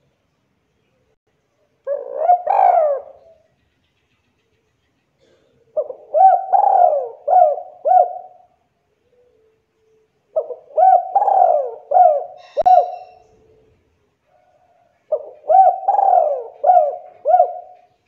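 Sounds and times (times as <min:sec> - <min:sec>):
dove cooing: 0:01.8 - 0:03.4, 0:05.2 - 0:09.5, 0:10.3 - 0:13.8, 0:14.5 - 0:18.0.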